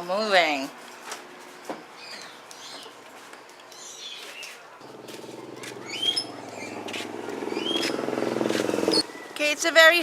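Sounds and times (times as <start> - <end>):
birds chirping: 1.5 - 10.0
low engine drone: 4.8 - 9.1.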